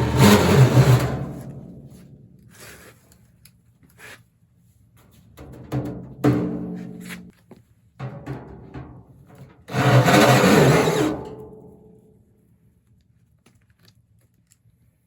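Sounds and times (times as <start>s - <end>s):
sheet metal ductwork drumming: 0.0s - 2.4s, 5.4s - 7.1s, 8.0s - 11.9s.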